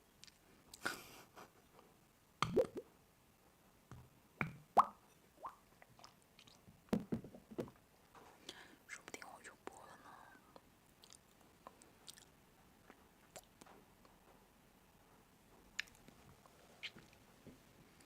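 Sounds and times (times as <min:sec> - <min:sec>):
wet mouth eating sounds: 0:05.9 - 0:06.6, 0:11.0 - 0:12.4, 0:13.3 - 0:13.7, 0:15.8 - 0:16.0.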